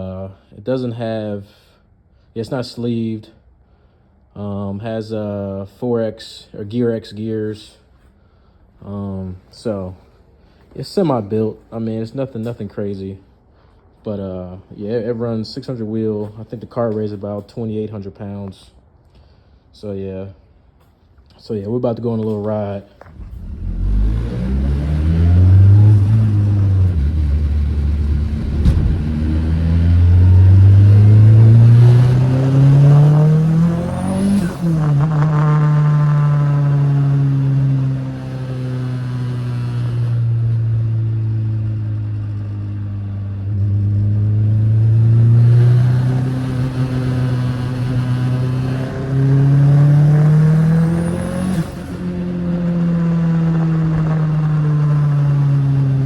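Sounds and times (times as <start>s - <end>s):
car engine revving: 23.0s - 56.0s.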